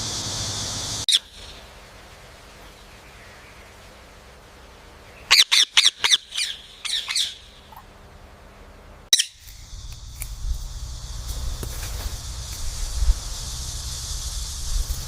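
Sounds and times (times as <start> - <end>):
steady hiss with low rumble: 0.0 - 15.0
parrot squawking: 5.3 - 7.4, 9.1 - 9.4.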